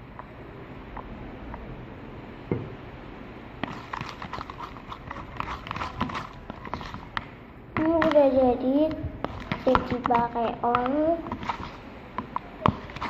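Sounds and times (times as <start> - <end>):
sticky clicks of stirred slime: 3.6 - 8.3, 9.2 - 13.0.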